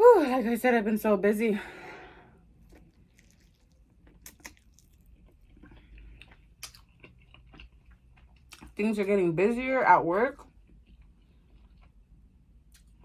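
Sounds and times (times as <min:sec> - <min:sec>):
person chewing food: 0:02.4 - 0:08.8, 0:10.5 - 0:13.0.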